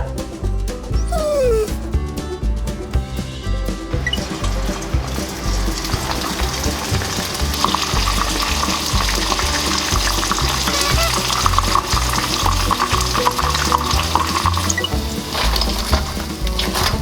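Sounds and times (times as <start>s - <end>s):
background music with steady beat: 0.0s - 17.0s
chicken crackling in hot oil: 4.0s - 17.0s.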